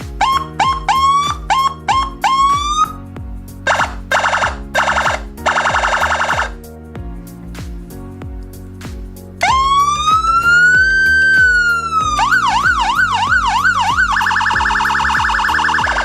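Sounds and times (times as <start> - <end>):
electronic siren wail yelp warble: 3.7 - 6.5, 9.5 - 16.0.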